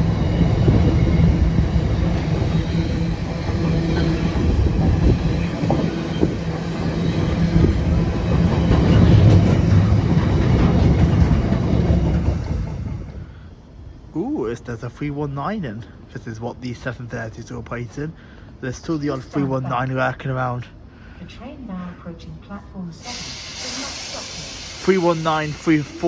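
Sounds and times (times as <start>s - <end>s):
train wheels clattering on rails: 0.0s - 13.4s.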